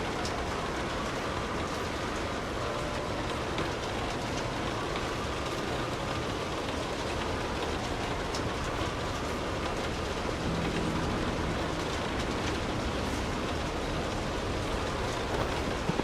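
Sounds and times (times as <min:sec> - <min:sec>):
rain falling: 0:00.0 - 0:16.0
faint hum: 0:07.8 - 0:16.0
low rumble: 0:10.2 - 0:15.2.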